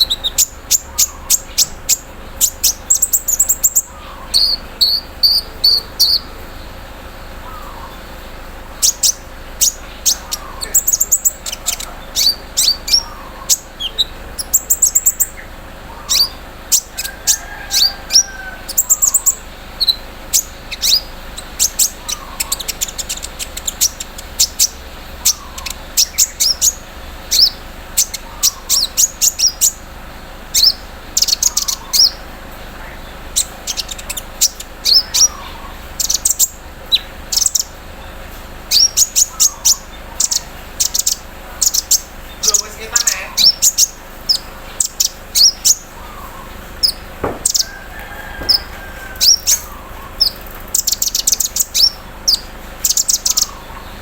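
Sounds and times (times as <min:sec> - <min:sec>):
sunbird high chirps and trills: 0:00.0 - 0:54.0.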